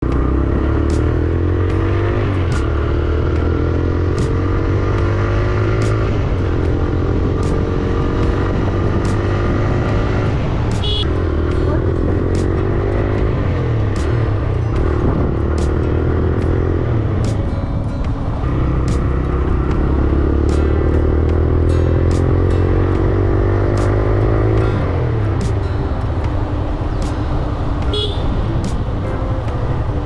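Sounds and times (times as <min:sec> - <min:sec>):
motorcycle engine revving: 0:00.0 - 0:29.9
short high beep: 0:10.8 - 0:11.2.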